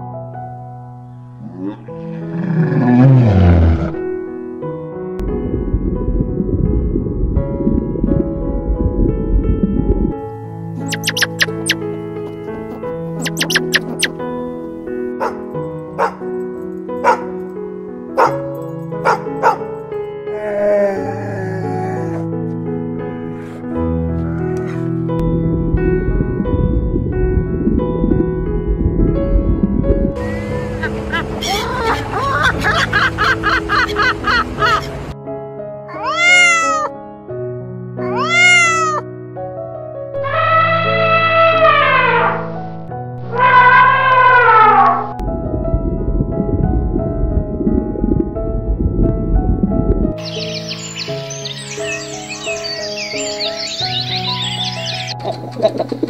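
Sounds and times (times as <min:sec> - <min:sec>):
background music sustained tones: 0:00.0 - 0:35.9, 0:39.0 - 0:56.0
long rising falling animal calls: 0:02.0 - 0:04.0, 0:10.8 - 0:14.2, 0:38.0 - 0:39.0, 0:40.2 - 0:45.2
animal short sharp calls: 0:10.8 - 0:11.8, 0:13.2 - 0:14.2.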